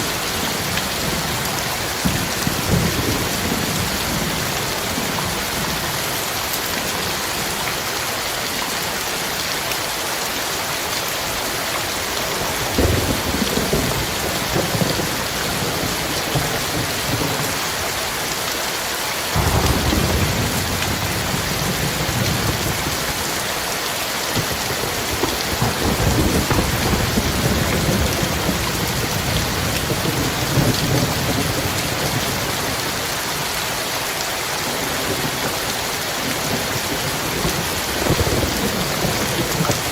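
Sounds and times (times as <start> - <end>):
thunder rumbling: 0.0 - 6.0, 12.4 - 17.9, 19.3 - 23.6, 24.3 - 33.1, 34.6 - 39.9
heavy rain hissing: 0.0 - 39.9.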